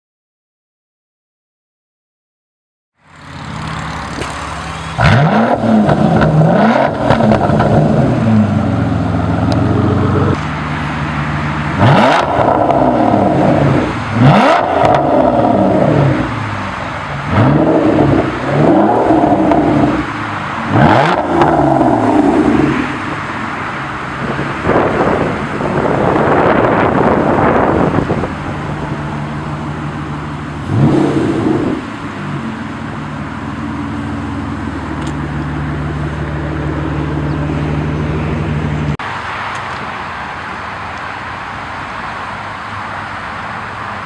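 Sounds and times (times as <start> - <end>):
car engine revving: 3.2 - 39.0.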